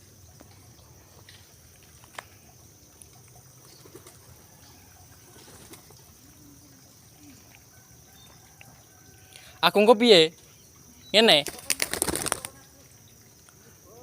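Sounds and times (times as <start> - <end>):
pigeons cooing softly: 0.0 - 9.6.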